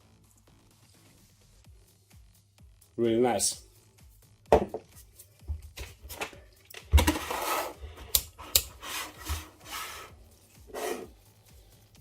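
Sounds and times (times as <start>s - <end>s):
small parts rubbing and scraping: 7.0s - 11.2s.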